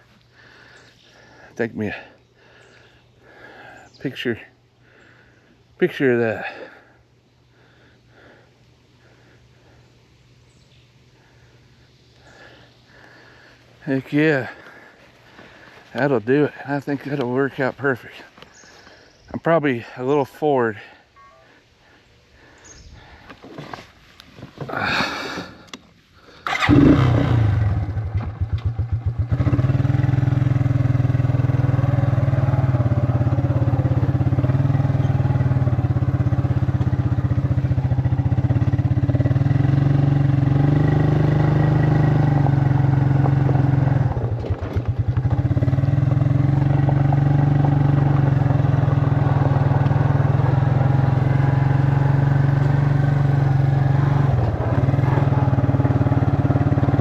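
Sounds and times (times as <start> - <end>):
small engine starting and running: 26.4 - 57.0.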